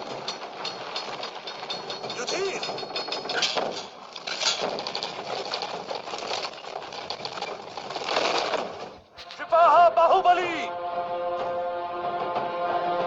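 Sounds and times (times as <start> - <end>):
fast dense clattering: 0.0 - 9.5.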